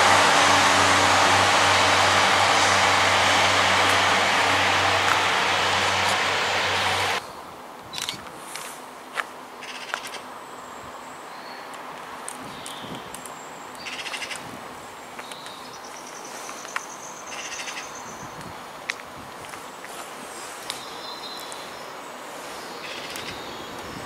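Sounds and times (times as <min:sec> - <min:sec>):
birds chattering: 0:22.6 - 0:24.0.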